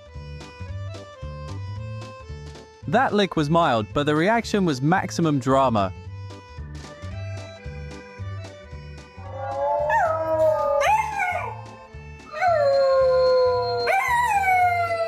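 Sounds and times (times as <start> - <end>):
dog howling: 9.2 - 15.0.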